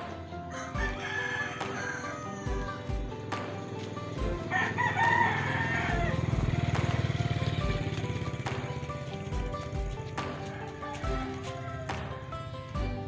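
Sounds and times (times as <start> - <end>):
music with steady beat: 0.0 - 13.0
rooster crowing: 0.5 - 3.0, 4.4 - 7.1, 10.2 - 12.6.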